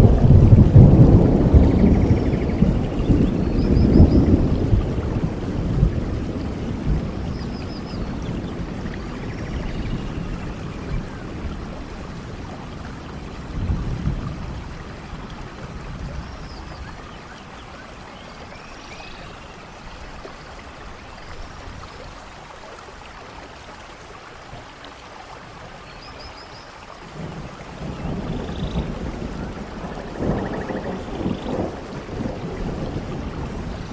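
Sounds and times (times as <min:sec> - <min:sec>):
thunder rumbling: 0:00.0 - 0:17.1, 0:27.1 - 0:33.9
steady rainfall: 0:00.0 - 0:33.9.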